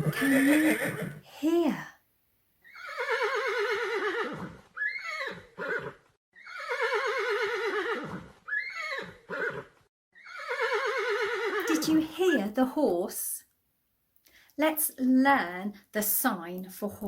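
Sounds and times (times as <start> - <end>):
horse whinnying: 0.0 - 1.2, 2.6 - 11.9.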